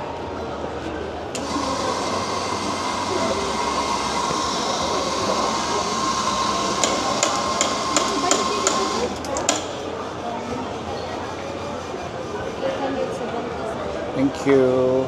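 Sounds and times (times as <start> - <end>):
steam wand hissing: 1.4 - 10.0.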